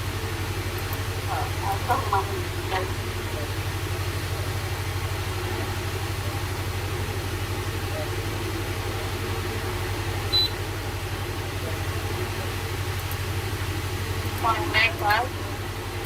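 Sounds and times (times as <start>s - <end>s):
low machine hum: 0.0s - 16.0s
short high beep: 10.3s - 10.6s.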